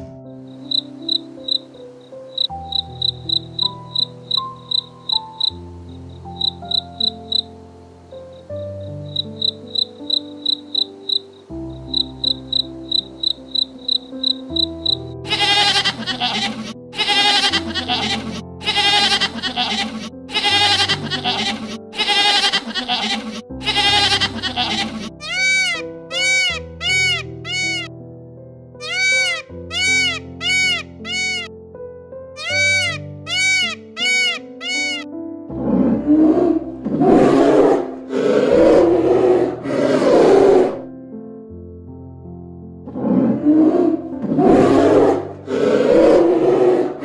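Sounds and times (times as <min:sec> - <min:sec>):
background music with low notes: 0:00.0 - 0:47.0
animal bleating: 0:15.3 - 0:27.9, 0:28.8 - 0:31.5, 0:32.4 - 0:35.0
big cat roaring: 0:35.6 - 0:40.9, 0:42.9 - 0:47.0.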